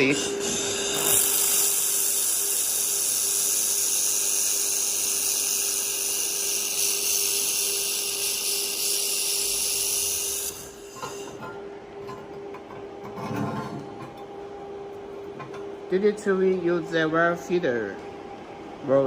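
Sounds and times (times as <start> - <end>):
laser welder hissing: 0.0 - 11.4
steady low hum: 0.0 - 19.0.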